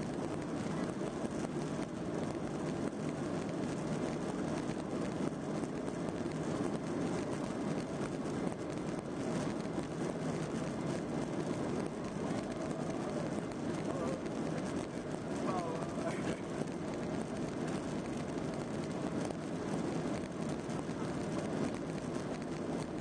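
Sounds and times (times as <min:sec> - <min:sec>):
jet engine rumble and hum: 0:00.0 - 0:23.0.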